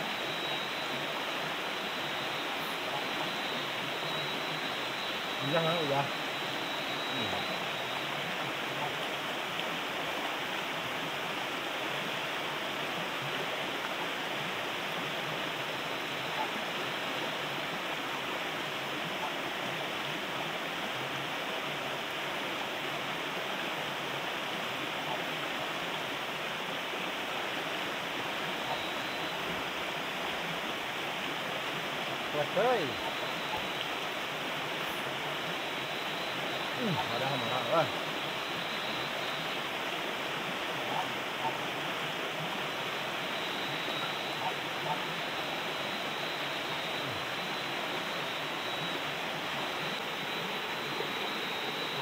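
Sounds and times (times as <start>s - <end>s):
river water rushing: 0.0s - 52.0s
heavy rain: 27.3s - 52.0s.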